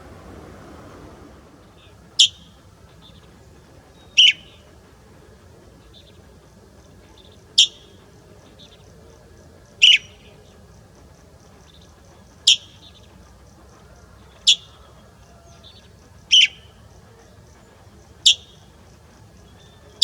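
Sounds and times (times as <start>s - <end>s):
bird giving sharp high calls: 1.6s - 4.8s, 7.1s - 8.0s, 9.7s - 10.5s, 11.7s - 13.1s, 13.8s - 17.0s, 18.1s - 18.8s.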